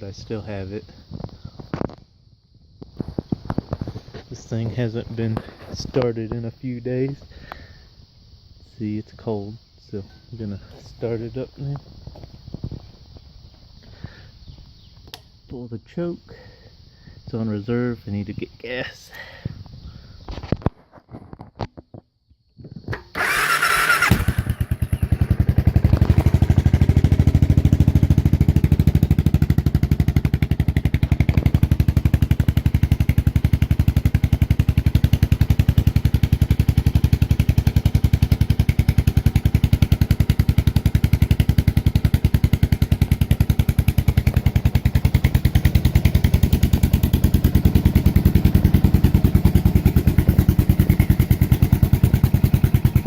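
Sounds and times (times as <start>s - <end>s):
motorcycle engine starting and idling: 22.9s - 53.0s.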